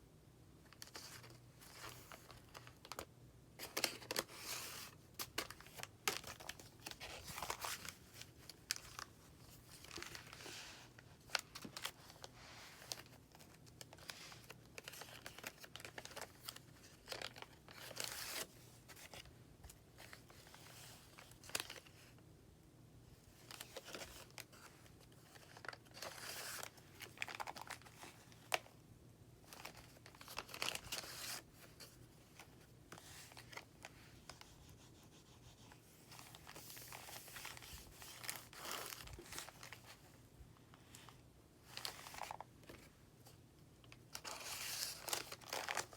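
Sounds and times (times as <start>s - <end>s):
paper pages rustling: 0.8s - 22.1s, 29.5s - 40.1s, 40.8s - 42.9s, 44.1s - 45.9s.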